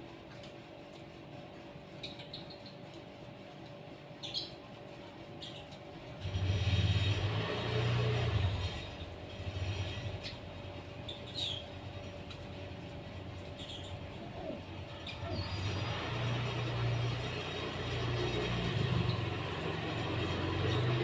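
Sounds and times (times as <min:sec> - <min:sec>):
small birds chirping: 0:02.0 - 0:03.0, 0:04.2 - 0:04.6, 0:09.6 - 0:21.0.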